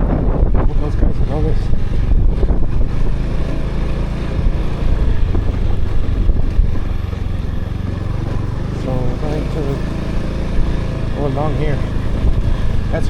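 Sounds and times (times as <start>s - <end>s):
motorbike engine running: 0.0s - 13.0s
wind rumbling on microphone: 0.0s - 13.0s.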